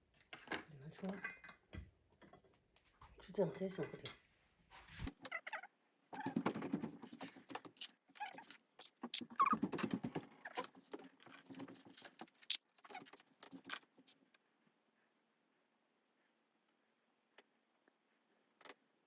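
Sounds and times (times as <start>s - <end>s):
metal dishes and utensils clinking: 0.6s - 1.7s.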